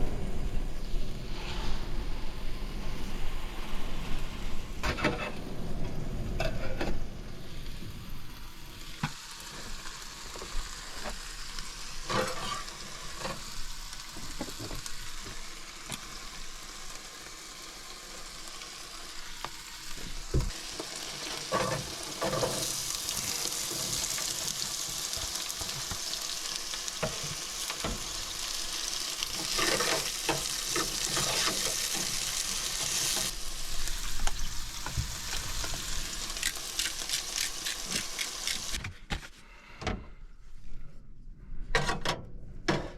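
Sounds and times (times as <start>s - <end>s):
food sizzling in a pan: 6.4s - 38.8s.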